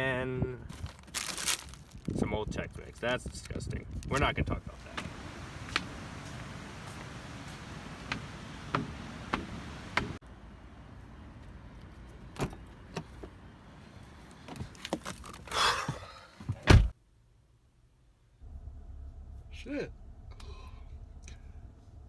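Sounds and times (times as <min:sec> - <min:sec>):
car door slamming: 0:16.5 - 0:17.0.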